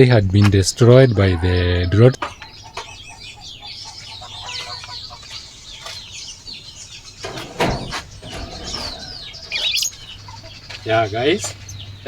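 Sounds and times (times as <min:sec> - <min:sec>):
birds chirping and twittering: 0:00.0 - 0:12.0.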